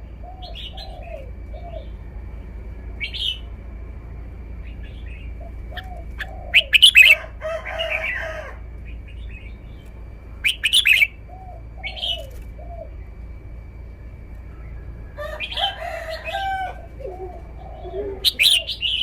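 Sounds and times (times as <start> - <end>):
softer bird calls: 0.2 - 2.0, 4.6 - 8.2, 8.9 - 13.0, 14.5 - 19.0
bulbul whistled song: 10.4 - 11.2.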